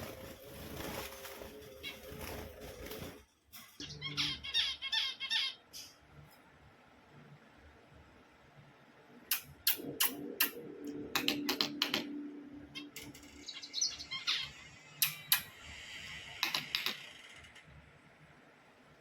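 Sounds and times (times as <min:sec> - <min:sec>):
finches chirping: 0:03.8 - 0:06.0, 0:09.3 - 0:17.0.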